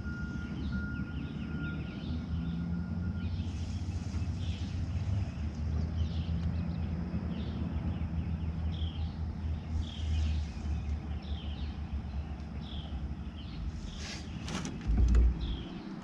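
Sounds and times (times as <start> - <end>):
bird chirping: 0.0 - 16.0
steady low rumble: 3.5 - 16.0.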